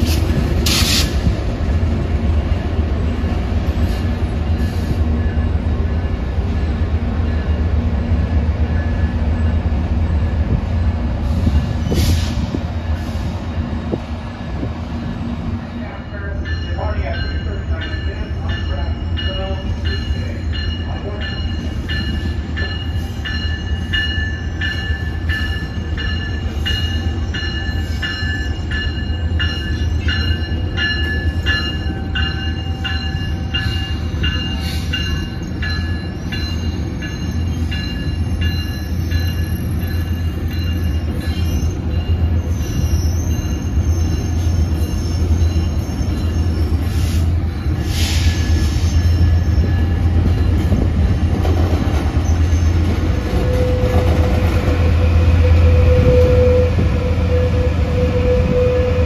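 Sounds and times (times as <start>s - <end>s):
train rumble: 0.0s - 59.0s
wheel squeal: 40.8s - 47.1s.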